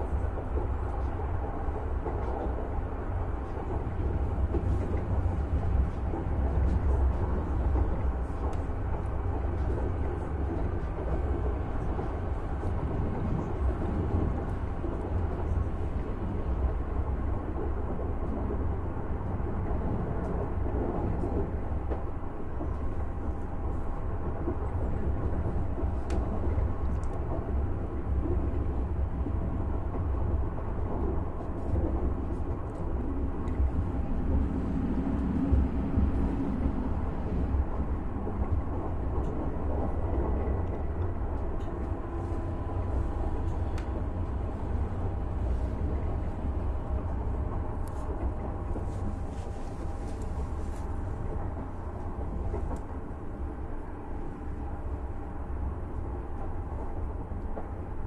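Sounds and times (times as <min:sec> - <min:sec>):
electric train running rumble: 0:00.0 - 0:58.0
faint light ticks: 0:25.7 - 0:27.4, 0:43.4 - 0:44.4.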